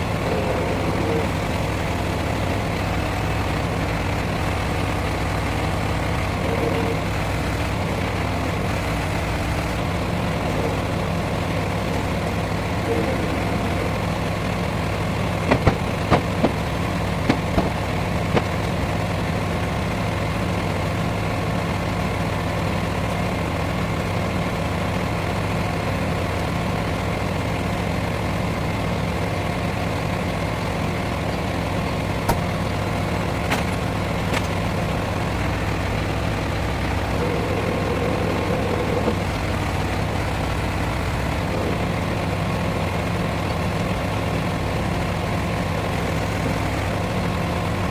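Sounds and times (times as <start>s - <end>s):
truck engine idling: 0.0s - 47.9s
sharp knocks: 15.4s - 16.6s, 17.2s - 18.7s.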